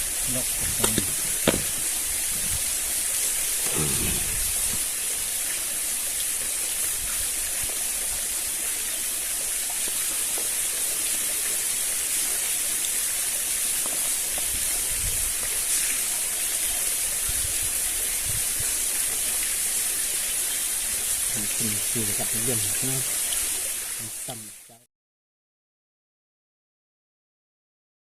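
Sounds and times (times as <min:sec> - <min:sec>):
food sizzling in a pan: 0:00.0 - 0:24.8.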